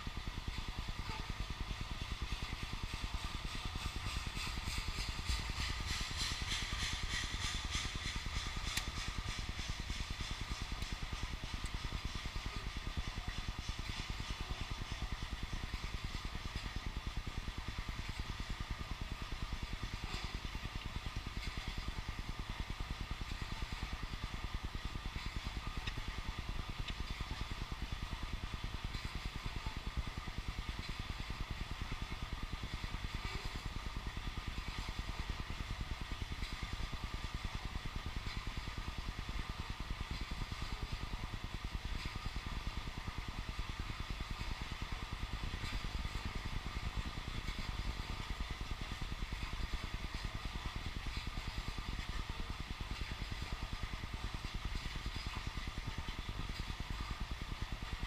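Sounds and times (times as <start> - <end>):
wheels clattering on rails: 2.3 - 16.8.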